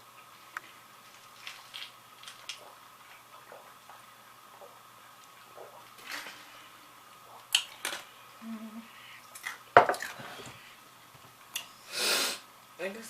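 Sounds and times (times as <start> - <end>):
tableware clicking and knocking: 9.8 - 10.4.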